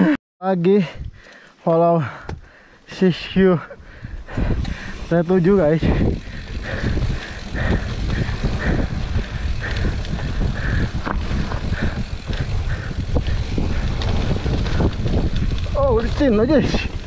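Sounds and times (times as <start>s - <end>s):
wind and ride rumble: 0.7s - 17.0s
bike knocks and rattles: 4.4s - 17.0s.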